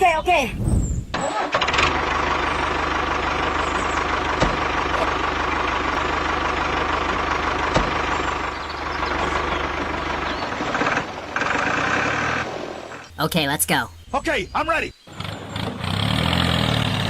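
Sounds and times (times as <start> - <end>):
tractor engine idling: 1.2 - 13.9.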